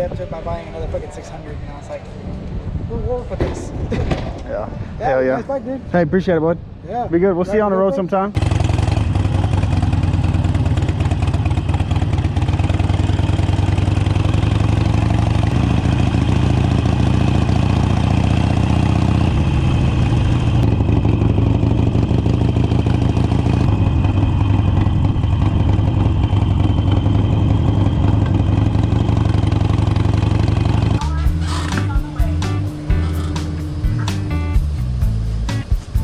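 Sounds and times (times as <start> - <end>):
motorcycle engine running: 8.4 - 36.0.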